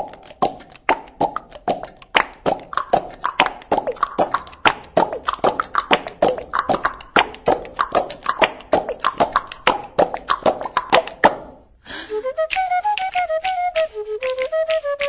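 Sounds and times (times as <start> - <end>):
hollow percussive taps: 0.0 - 11.6.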